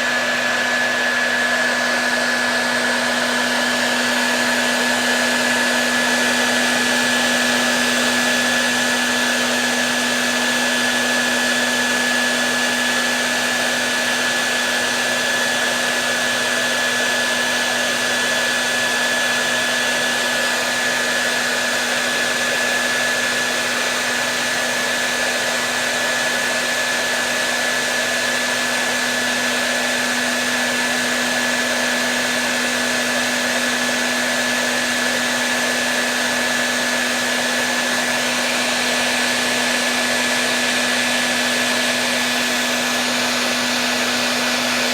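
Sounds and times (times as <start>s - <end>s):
hair dryer running: 0.0s - 44.9s.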